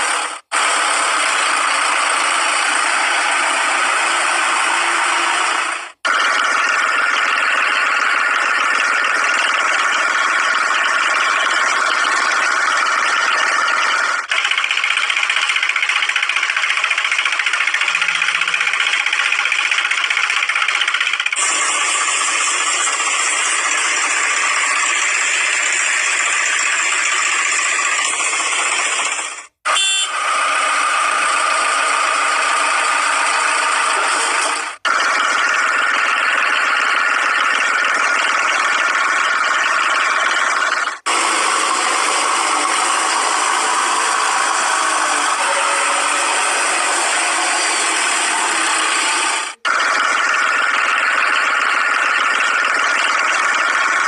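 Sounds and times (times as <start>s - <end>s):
small motor rattling and whining: 0.0s - 54.0s.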